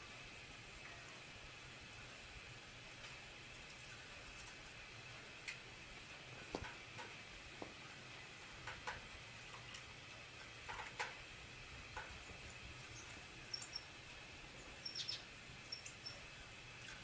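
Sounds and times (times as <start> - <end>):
small bird chirps: 12.9 - 13.9, 14.8 - 16.3.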